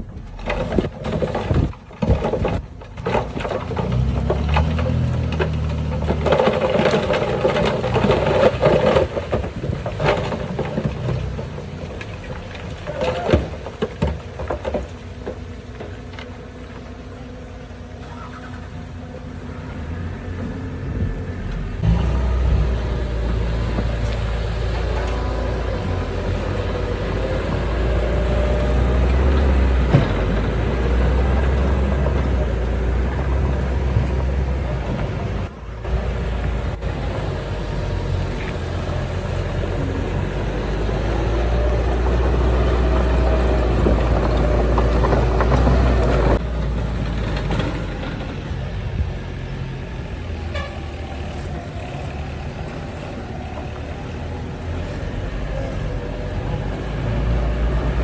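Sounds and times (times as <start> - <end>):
diesel machinery running: 0.0 - 58.0
deep engine drone: 16.1 - 58.0.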